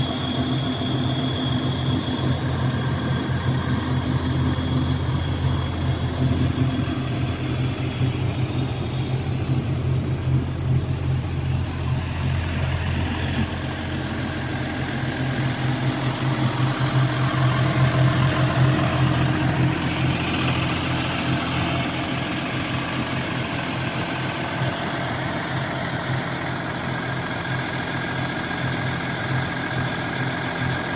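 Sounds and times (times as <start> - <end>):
tractor diesel engine idling: 0.0 - 30.9.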